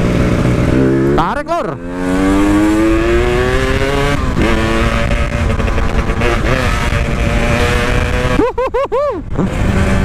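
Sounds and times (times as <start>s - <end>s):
two-stroke motorcycle engine: 0.0s - 8.0s.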